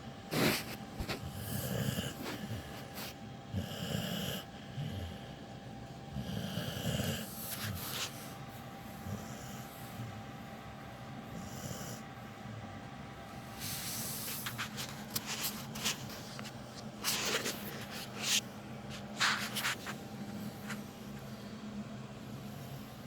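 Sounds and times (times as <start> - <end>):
dog sniffing breaths through nose: 0.3 - 3.2, 7.0 - 8.4, 13.5 - 16.3, 17.0 - 20.9
dog snoring: 0.3 - 10.5, 11.2 - 12.7.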